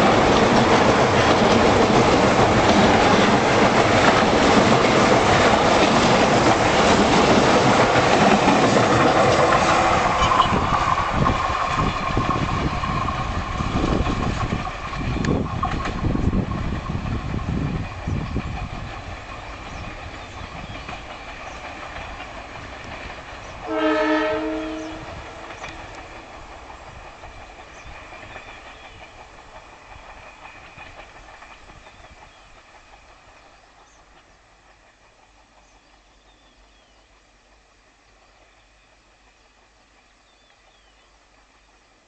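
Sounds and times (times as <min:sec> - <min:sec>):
train wheels on rails: 0:00.0 - 0:42.0
locomotive horn blast: 0:10.2 - 0:10.7, 0:23.6 - 0:25.4.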